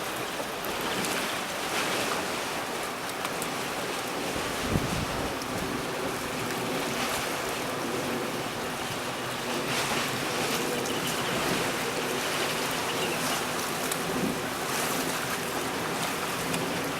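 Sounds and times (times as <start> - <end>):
sea waves rushing: 0.0 - 16.9
wind buffeting microphone: 4.2 - 16.9.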